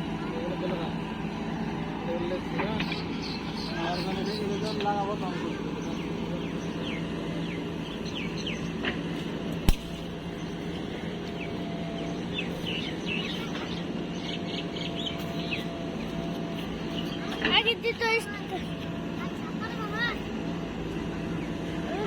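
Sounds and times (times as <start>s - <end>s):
birds chirping: 2.5s - 17.5s
sharp knock: 9.7s - 10.1s.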